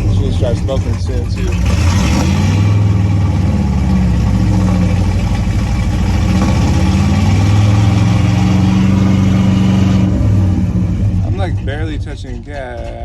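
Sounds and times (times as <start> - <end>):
truck engine revving high: 0.0 - 12.4.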